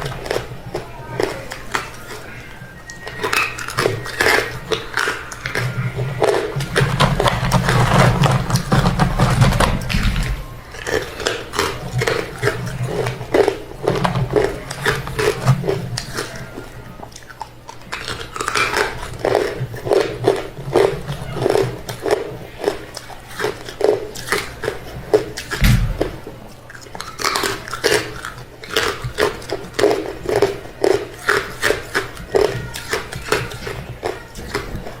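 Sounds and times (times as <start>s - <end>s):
chewing crunchy ice: 0.0s - 35.0s.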